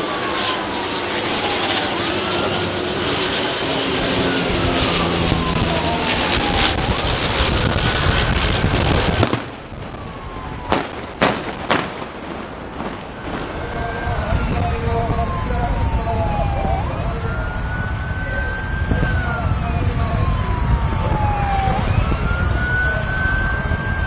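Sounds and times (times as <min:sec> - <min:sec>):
aircraft engines passing low: 0:00.0 - 0:24.0
siren wailing: 0:00.0 - 0:24.0
sharp bangs: 0:04.5 - 0:15.2.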